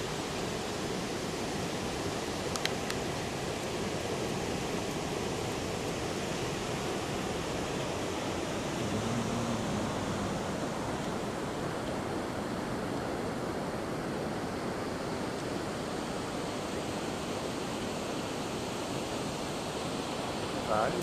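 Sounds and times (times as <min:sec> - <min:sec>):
heavy surf breaking: 0:08.7 - 0:11.8.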